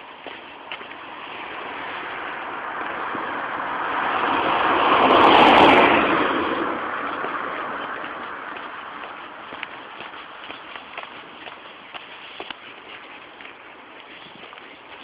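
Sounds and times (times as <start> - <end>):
vehicle driving past: 1.0 - 10.1.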